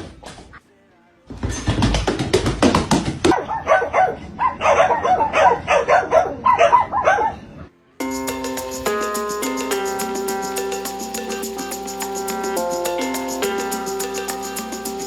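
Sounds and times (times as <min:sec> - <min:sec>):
dog barking and yipping: 0:03.3 - 0:07.5.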